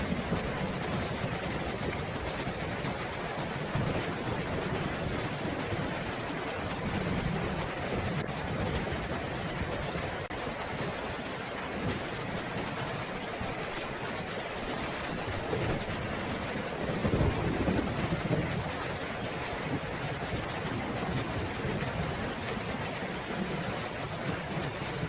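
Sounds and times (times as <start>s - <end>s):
low roll of thunder: 0.0s - 10.1s, 15.2s - 25.0s
steady rain falling: 0.0s - 25.0s.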